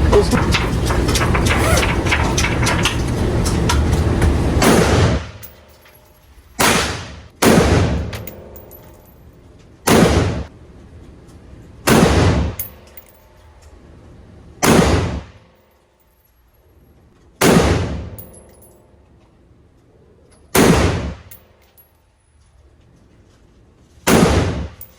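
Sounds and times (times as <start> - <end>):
gunshots with ringing tail: 4.6 - 5.4, 6.6 - 8.8, 9.9 - 10.5.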